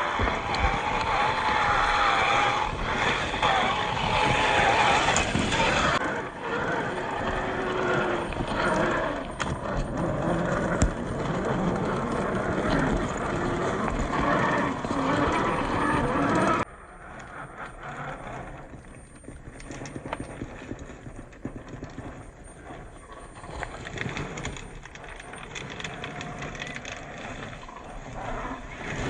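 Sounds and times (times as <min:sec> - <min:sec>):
toy car motor whining: 0:00.0 - 0:29.0.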